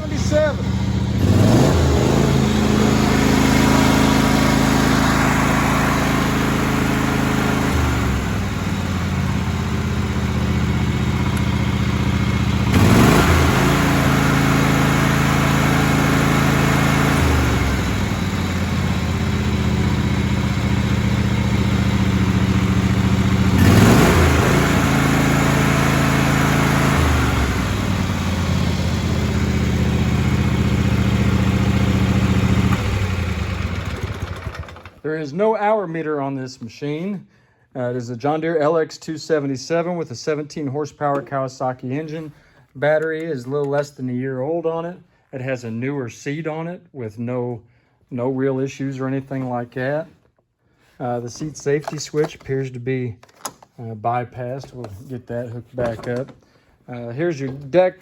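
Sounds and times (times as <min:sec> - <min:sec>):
lawn tractor engine revving: 0:00.0 - 0:35.1.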